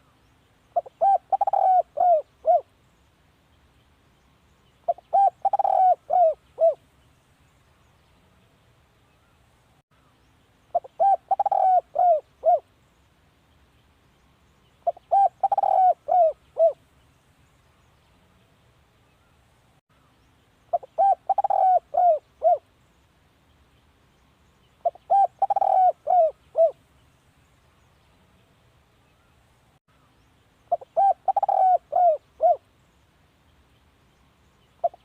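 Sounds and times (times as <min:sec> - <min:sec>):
dove cooing: 0:00.8 - 0:02.7, 0:04.9 - 0:06.8, 0:10.7 - 0:12.7, 0:14.8 - 0:16.8, 0:20.7 - 0:22.6, 0:24.8 - 0:26.8, 0:30.7 - 0:32.6, 0:34.8 - 0:35.0.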